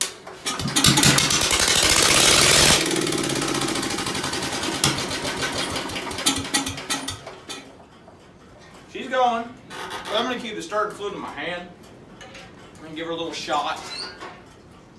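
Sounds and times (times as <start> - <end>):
engine running roughly: 0.5 - 7.4.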